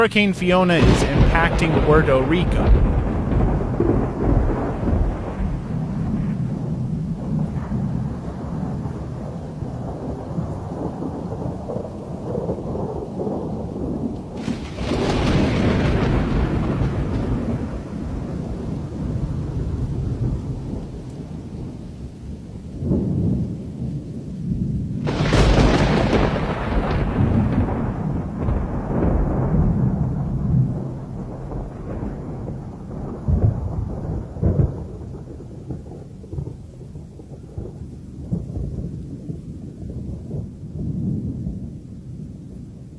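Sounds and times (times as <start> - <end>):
loud thunder crack: 0.0 - 21.8, 22.8 - 42.4
low thunder rumble: 0.0 - 42.9.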